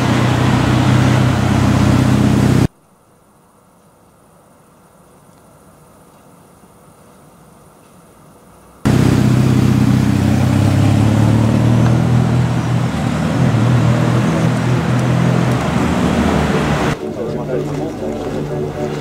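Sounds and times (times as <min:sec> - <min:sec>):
car engine running: 0:00.0 - 0:02.7, 0:08.9 - 0:19.0.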